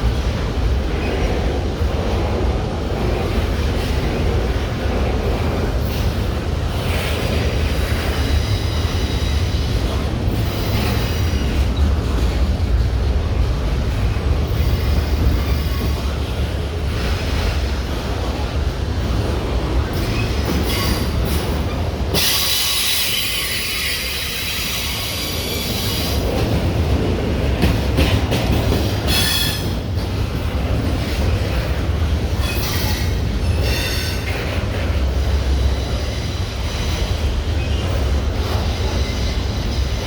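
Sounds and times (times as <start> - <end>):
train cars rumbling past: 0.0 - 40.0
wheels squealing on rails: 5.3 - 12.5, 14.1 - 17.6, 19.2 - 26.8, 27.6 - 40.0.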